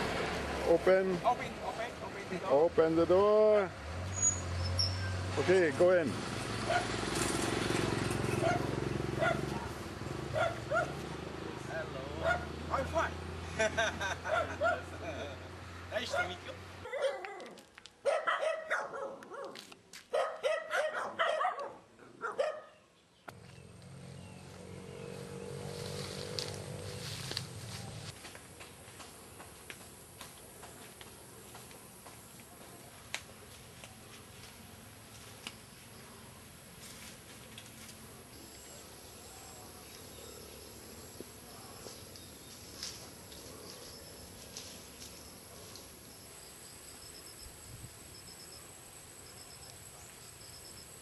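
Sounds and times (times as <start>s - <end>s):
dog barking: 6.7s - 7.0s, 8.3s - 11.0s, 12.2s - 12.6s, 14.3s - 14.9s, 16.0s - 22.8s
insects trilling: 38.4s - 51.0s.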